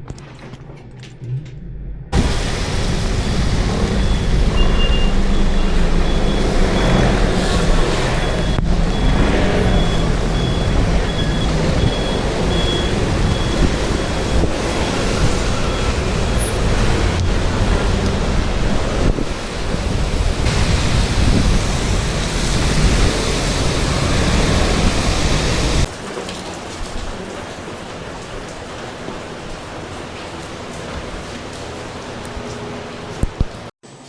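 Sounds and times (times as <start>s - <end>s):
wind buffeting microphone: 2.1s - 25.9s
road traffic rumble: 2.1s - 33.7s
reversing beeper: 3.0s - 16.7s.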